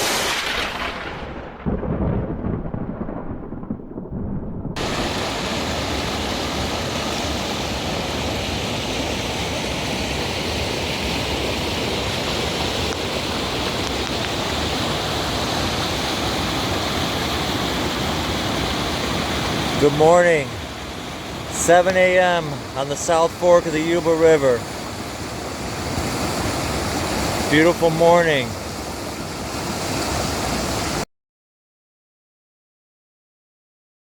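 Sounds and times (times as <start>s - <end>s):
river water rushing: 4.8s - 31.0s.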